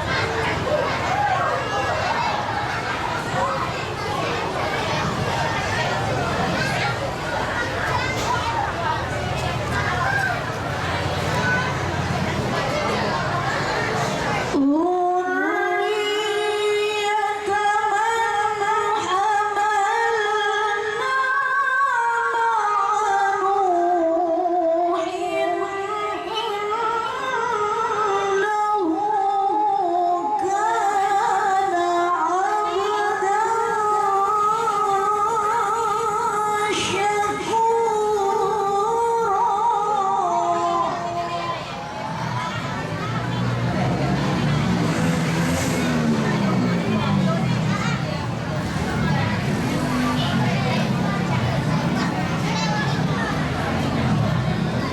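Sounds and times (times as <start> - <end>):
woman reciting melodically: 14.4 - 42.1.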